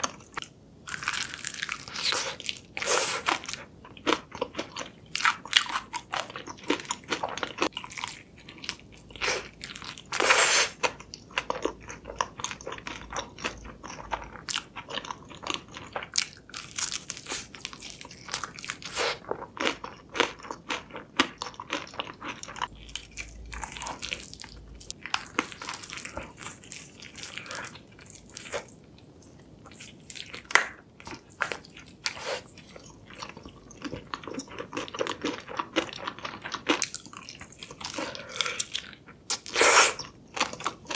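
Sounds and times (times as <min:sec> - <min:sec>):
crunching fried chicken: 0:00.0 - 0:28.7.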